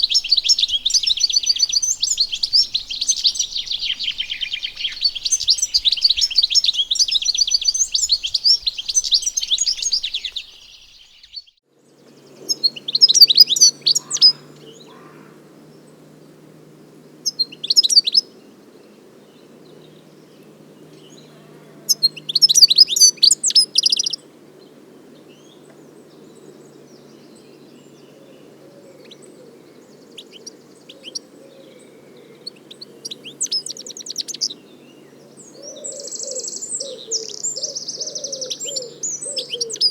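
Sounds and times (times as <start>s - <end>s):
faint low hum: 0.0s - 11.3s
finch singing: 0.0s - 11.5s, 35.5s - 39.9s.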